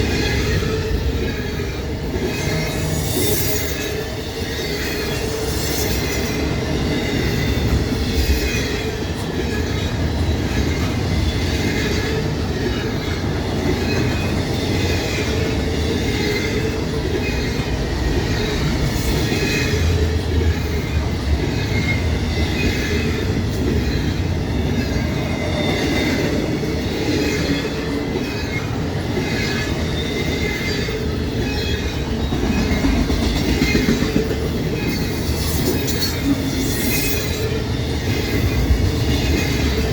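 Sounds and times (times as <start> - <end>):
train wheels rumbling on rail: 0.0 - 39.9
wheel squeal: 34.7 - 38.6.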